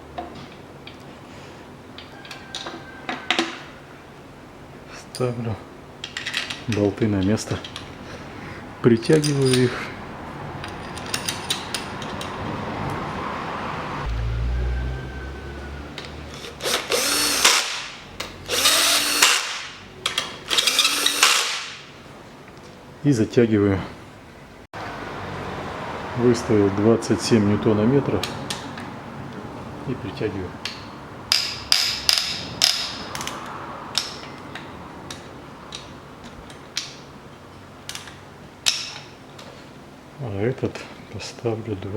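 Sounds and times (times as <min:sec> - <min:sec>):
power drill motor whining: 0:16.4 - 0:17.8, 0:18.4 - 0:19.6, 0:20.5 - 0:21.6
torque wrench clicking: 0:16.4 - 0:21.8.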